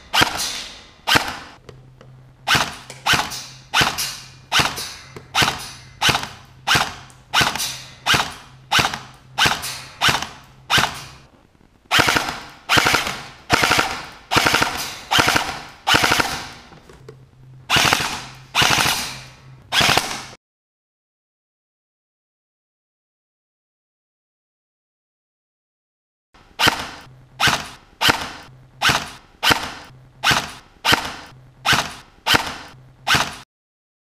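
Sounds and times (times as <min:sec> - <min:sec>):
airsoft gun full-auto bursts: 0:11.9 - 0:16.6, 0:17.7 - 0:19.1, 0:19.8 - 0:20.4.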